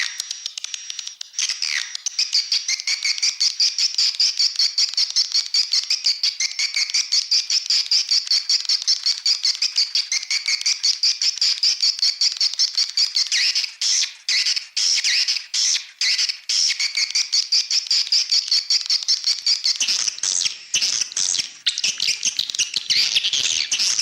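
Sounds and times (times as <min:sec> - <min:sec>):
swiftlet chattering twitter: 0:01.4 - 0:24.0.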